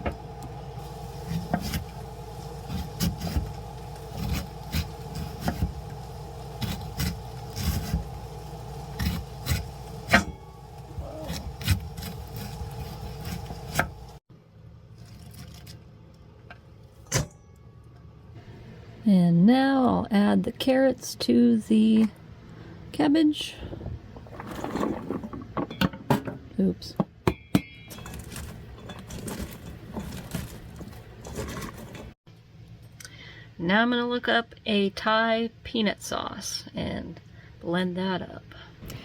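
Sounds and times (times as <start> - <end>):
low hum: 0.0 - 14.9
knife chopping on cutting board: 4.1 - 5.8, 11.3 - 14.0.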